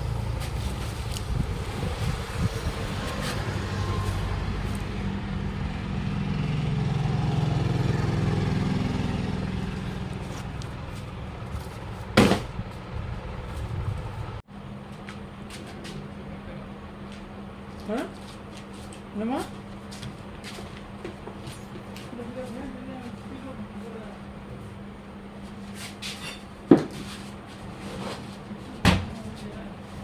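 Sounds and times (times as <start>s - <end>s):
vehicle engine passing by: 0.0s - 14.4s.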